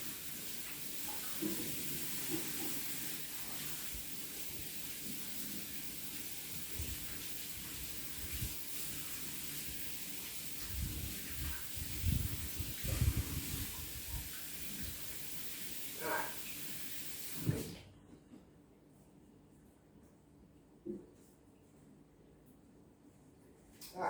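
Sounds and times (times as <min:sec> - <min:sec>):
tap water running into sink: 0:00.0 - 0:17.7.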